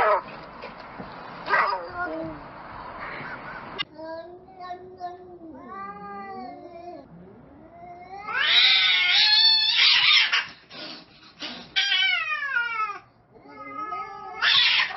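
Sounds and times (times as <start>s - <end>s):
cats yowling and screeching: 4.0s - 14.9s.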